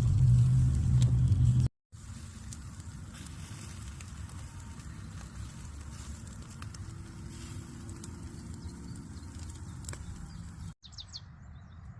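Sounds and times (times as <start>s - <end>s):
fire crackling and popping: 0.0s - 10.8s
bird chirp: 8.1s - 11.9s.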